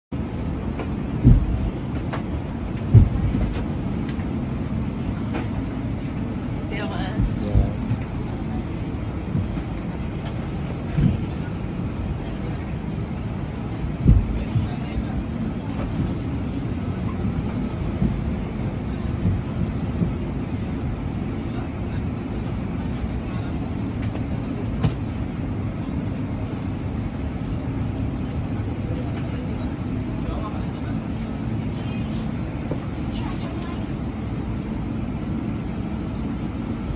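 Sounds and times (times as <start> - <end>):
vehicle cabin rumble: 0.1 - 36.9
heavy low thumps: 1.1 - 1.8, 2.9 - 3.5, 14.0 - 14.7.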